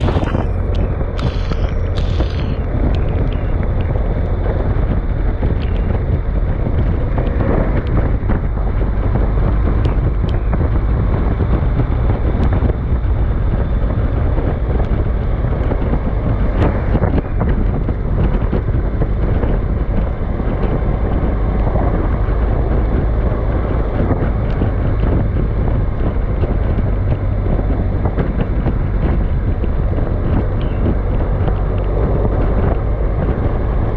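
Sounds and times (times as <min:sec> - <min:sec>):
short crackles: 0:00.0 - 0:03.7
wind buffeting microphone: 0:00.0 - 0:33.9.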